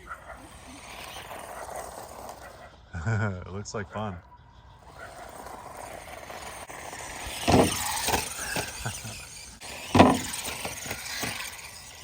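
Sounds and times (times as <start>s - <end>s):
toy truck motor whining: 0.0s - 2.9s, 4.7s - 12.0s
tyres squealing: 7.0s - 12.0s.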